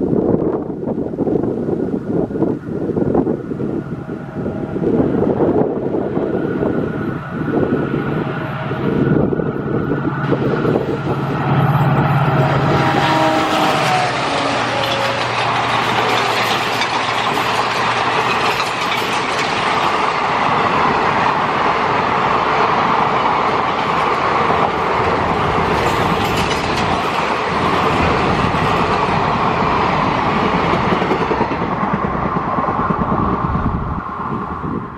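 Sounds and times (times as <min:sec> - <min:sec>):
train wheels rushing on rails: 0:00.3 - 0:34.9
clickety-clack over rail joints: 0:12.8 - 0:21.8, 0:22.4 - 0:33.2.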